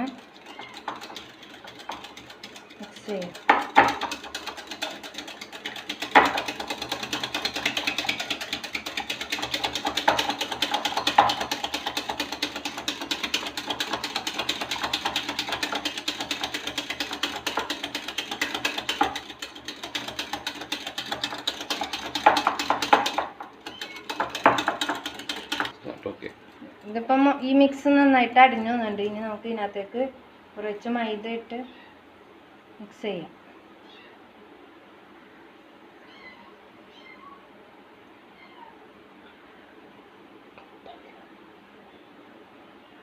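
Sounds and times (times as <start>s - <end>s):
beaters rattling against bowl: 0.0s - 27.1s.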